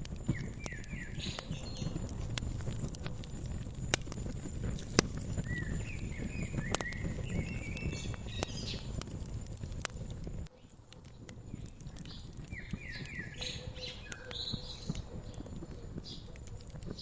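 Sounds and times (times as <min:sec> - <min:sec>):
wood fire crackling: 0:00.0 - 0:17.0
songbird chirping: 0:00.3 - 0:02.1, 0:05.4 - 0:08.9, 0:11.5 - 0:17.0.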